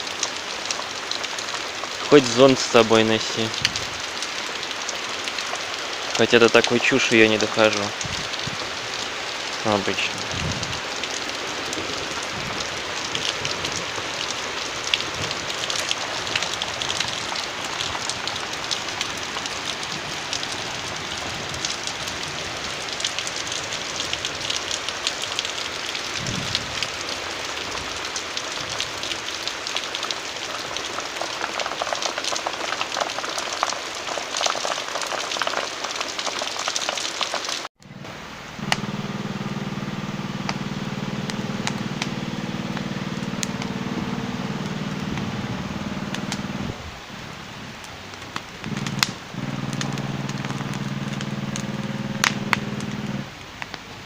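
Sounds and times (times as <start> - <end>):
rain patter: 0.0 - 54.0
steady low hum: 37.8 - 47.8, 48.6 - 53.3.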